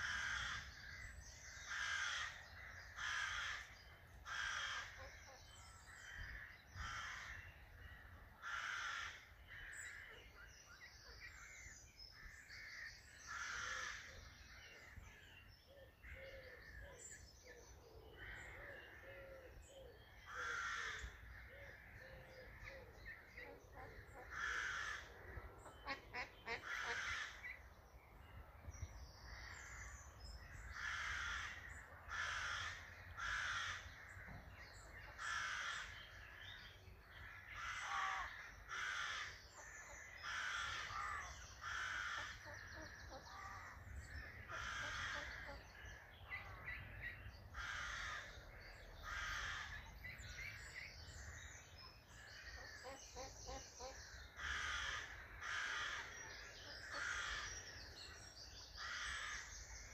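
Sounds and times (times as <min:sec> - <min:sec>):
bird harsh calls: 0:15.8 - 0:27.7, 0:29.3 - 0:59.9.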